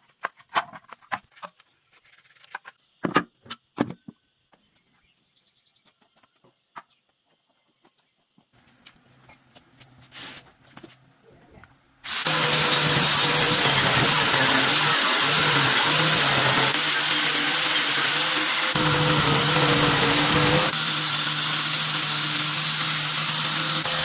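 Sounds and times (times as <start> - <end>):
power tool running loudly: 12.1 - 24.0.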